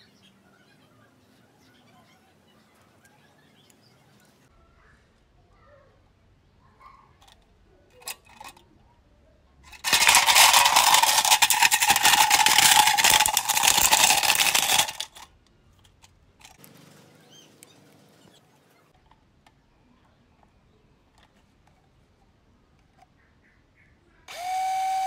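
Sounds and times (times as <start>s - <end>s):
small electric motor buzzing: 24.3s - 25.0s.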